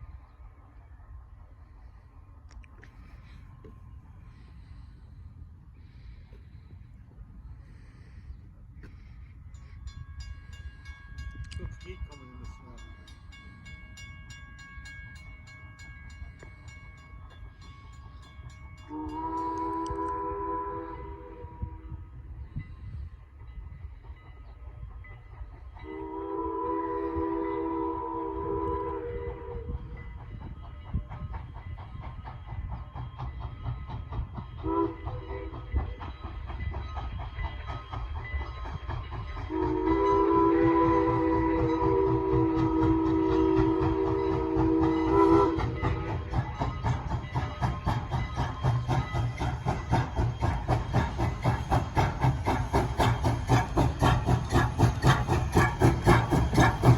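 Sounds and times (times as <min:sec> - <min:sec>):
steam train chugging: 0:00.0 - 0:56.9
steam whistle chord: 0:18.9 - 0:21.9, 0:25.8 - 0:29.7, 0:39.5 - 0:46.0.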